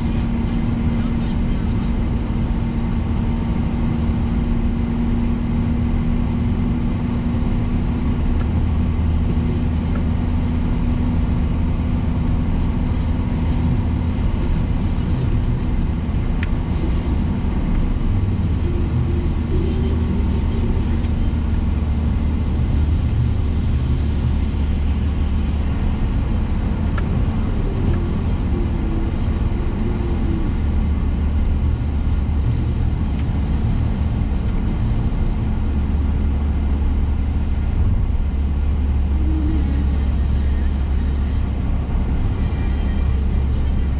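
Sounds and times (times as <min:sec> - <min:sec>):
constant hum: 0:00.0 - 0:43.9
engine and road rumble: 0:00.0 - 0:43.9.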